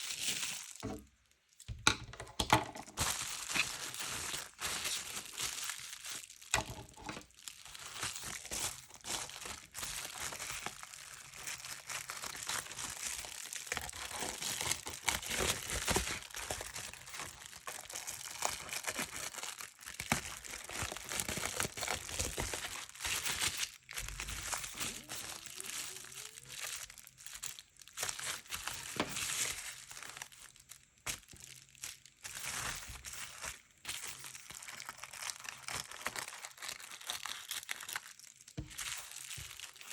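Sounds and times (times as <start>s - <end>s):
paper rustling and crinkling: 2.9s - 39.9s.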